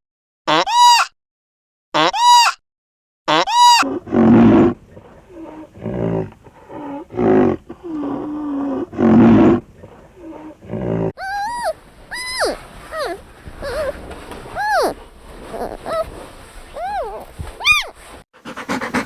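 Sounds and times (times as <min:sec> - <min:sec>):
large animal low rough calls: 0:03.8 - 0:17.4.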